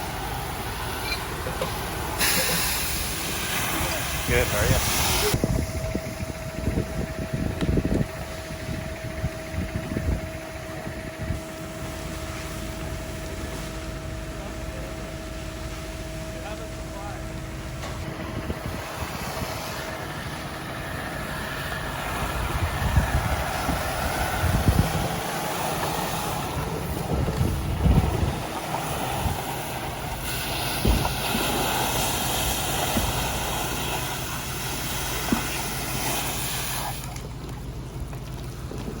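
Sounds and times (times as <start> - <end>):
bright hiss: 0.0 - 5.4
wind buffeting microphone: 0.0 - 13.5, 17.4 - 36.7
engine rumble: 0.0 - 39.0.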